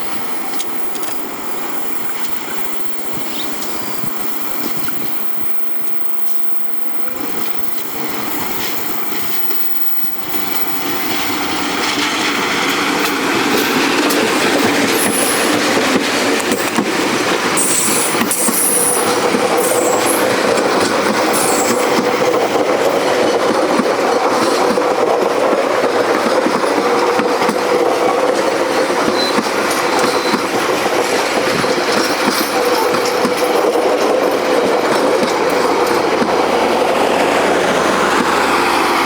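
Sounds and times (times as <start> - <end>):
train wheels rumbling on rails: 0.0 - 39.0
high wheel squeals: 17.6 - 22.5, 28.5 - 30.7.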